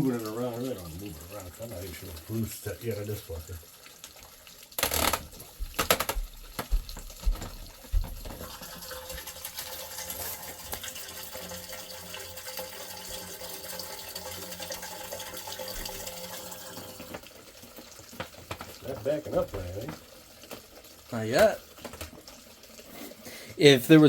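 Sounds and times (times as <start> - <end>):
water running down a drain: 0.0 - 24.0
knocks and clatters: 4.8 - 8.5, 18.1 - 20.7.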